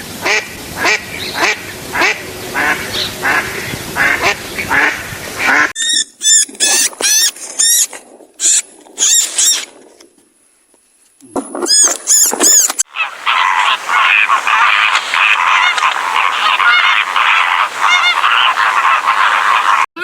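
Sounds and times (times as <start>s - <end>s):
duck quacking: 0.2s - 5.8s, 12.8s - 19.9s
animal high squeaky calls: 5.8s - 9.7s, 11.7s - 19.9s.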